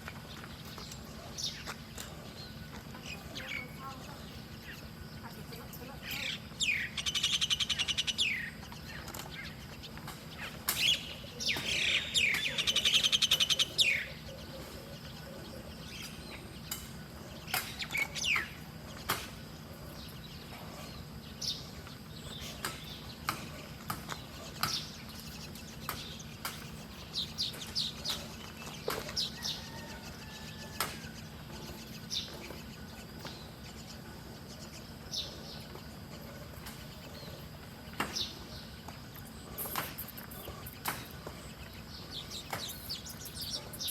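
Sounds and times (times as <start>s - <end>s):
songbirds chirping: 0.0s - 43.9s.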